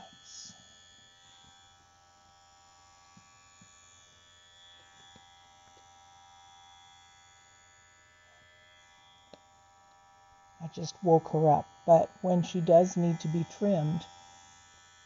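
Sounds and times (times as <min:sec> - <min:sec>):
electric clipper motor humming: 0:00.0 - 0:15.0.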